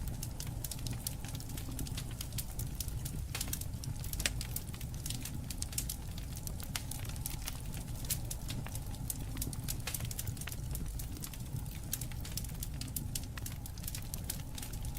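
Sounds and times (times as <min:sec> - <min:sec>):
campfire crackling and popping: 0:00.0 - 0:14.9
low rumble of burning fire: 0:00.0 - 0:14.9.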